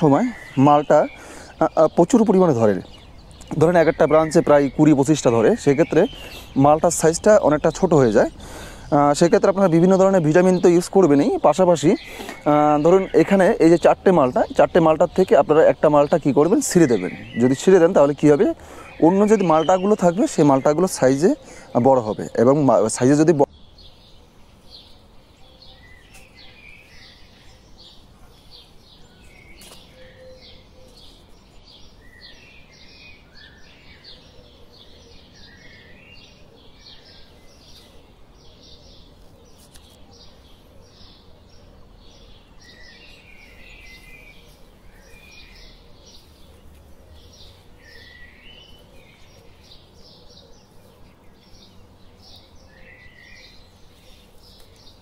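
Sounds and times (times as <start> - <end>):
birds chirping: 0.0 - 55.0
lower twittering calls: 0.0 - 55.0.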